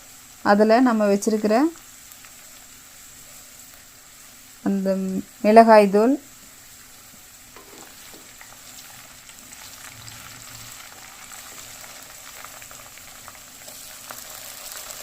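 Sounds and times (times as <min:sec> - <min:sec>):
onions sizzling in oil: 0:00.0 - 0:15.0
spoon tapping and scraping pan: 0:07.6 - 0:08.4.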